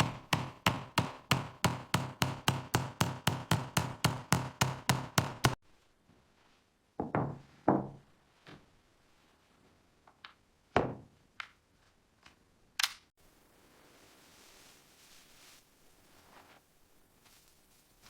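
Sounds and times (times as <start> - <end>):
irregular knocks and taps: 0.0 - 5.6
faint hiss: 13.2 - 18.0.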